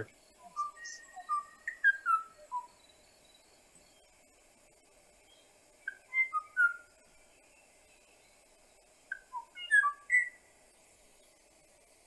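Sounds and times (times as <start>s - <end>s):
faint hiss: 0.0s - 12.0s
bird whistling flute-like notes: 0.4s - 2.8s, 5.9s - 6.9s, 9.1s - 10.4s.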